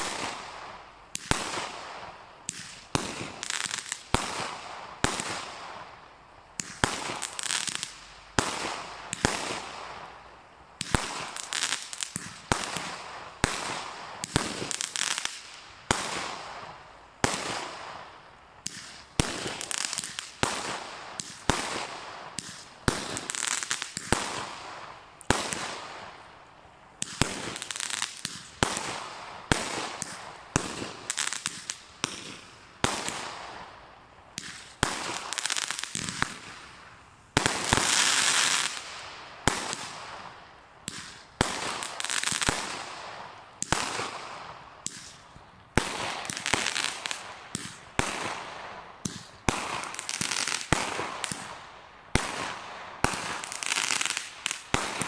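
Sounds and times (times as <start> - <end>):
firework bangs: 0.0 - 5.8, 6.6 - 10.0, 10.8 - 18.0, 27.0 - 33.7, 34.4 - 51.6, 52.2 - 55.0
fizzing crackle of fireworks: 0.0 - 55.0.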